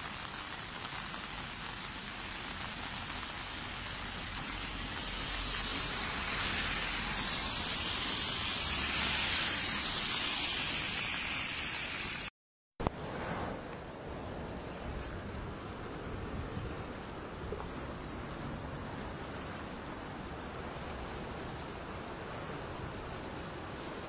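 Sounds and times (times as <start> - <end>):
water rushing and hissing: 0.0 - 24.0.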